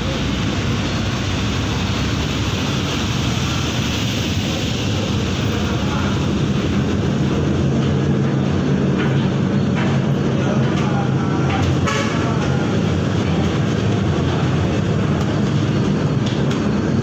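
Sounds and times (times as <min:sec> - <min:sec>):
ferry engines droning: 0:00.0 - 0:17.0
rushing noise: 0:00.0 - 0:17.0.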